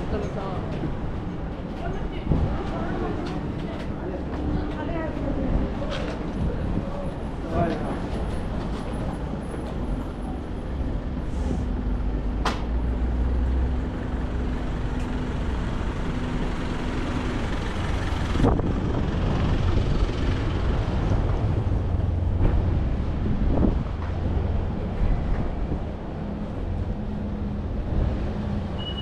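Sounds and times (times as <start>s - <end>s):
passing vehicles rumbling: 0.0s - 29.0s
sharp short squeak: 28.8s - 29.0s.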